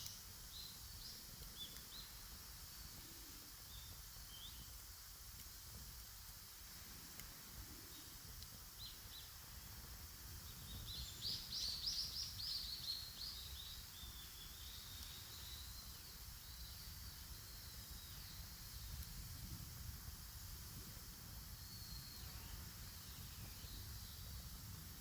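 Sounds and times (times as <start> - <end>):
bird chirps: 10.6 - 18.5.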